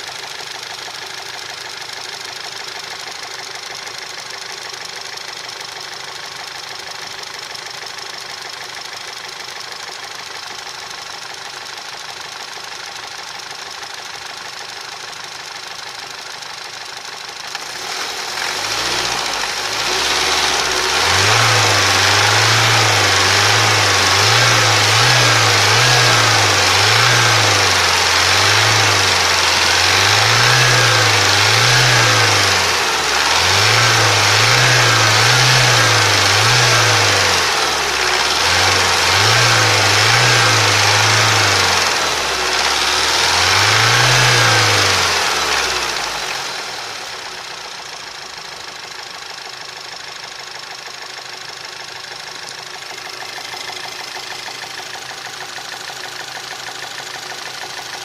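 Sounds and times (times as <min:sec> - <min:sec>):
car engine knocking: 0:47.4 - 0:58.0.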